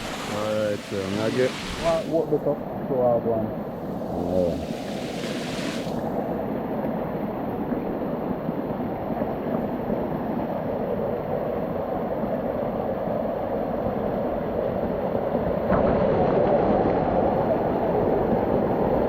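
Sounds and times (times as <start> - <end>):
waterfall rushing and splashing: 0.0 - 2.6, 3.8 - 6.4.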